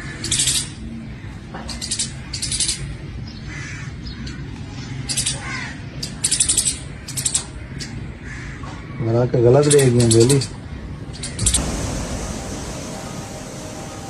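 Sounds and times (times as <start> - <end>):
birds giving harsh high calls: 0.0 - 14.0
steady low hum: 10.5 - 14.0.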